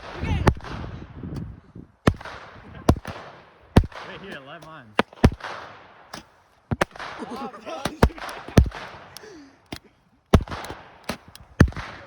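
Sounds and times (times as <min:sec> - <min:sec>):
fireworks bangs: 0:00.0 - 0:09.2.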